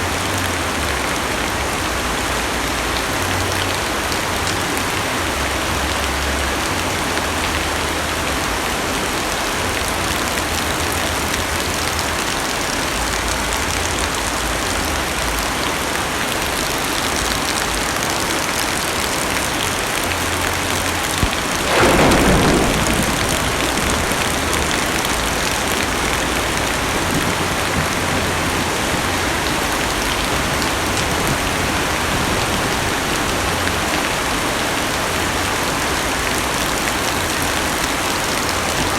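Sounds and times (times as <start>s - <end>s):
heavy rain on car roof: 0.0s - 38.9s
thunder clap: 21.1s - 35.6s.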